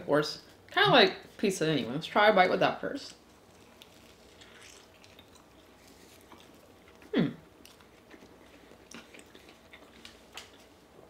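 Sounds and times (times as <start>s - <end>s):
quiet chewing: 3.0s - 10.9s
person humming: 7.1s - 7.4s.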